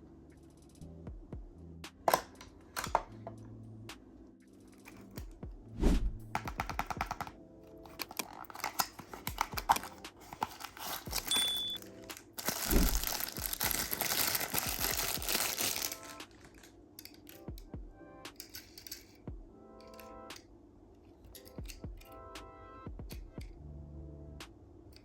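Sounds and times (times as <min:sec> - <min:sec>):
plastic wrapping crinkling: 0:07.8 - 0:17.4
packaging thud: 0:08.0 - 0:16.7.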